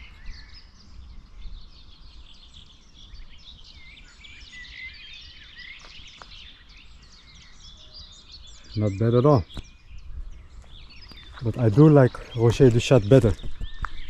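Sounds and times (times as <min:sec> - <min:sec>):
songbirds singing and chirping: 0:00.0 - 0:14.0.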